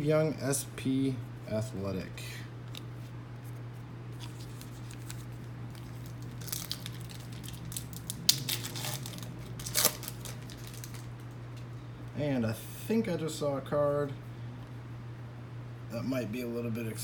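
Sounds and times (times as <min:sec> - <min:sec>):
low steady hum: 0:00.0 - 0:17.0
foil wrapper tearing and crinkling: 0:04.2 - 0:11.3.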